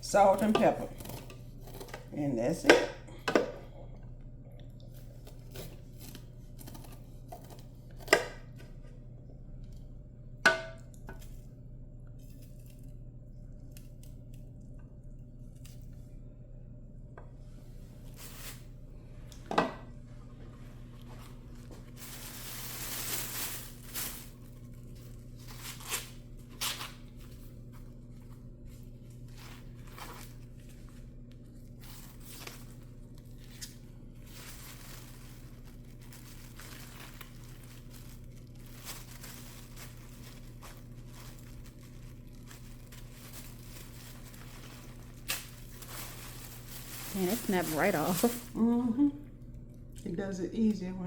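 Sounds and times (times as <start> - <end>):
low electrical hum: 0.0 - 51.0
corn husks tearing and rustling: 5.0 - 8.1, 21.0 - 48.6.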